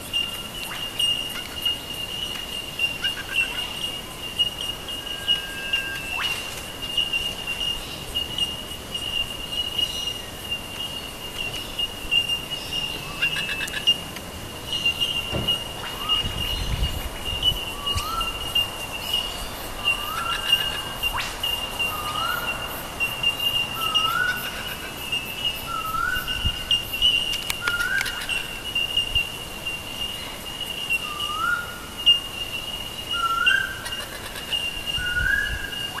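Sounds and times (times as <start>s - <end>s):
steady high-pitched tone: 0.0s - 11.0s.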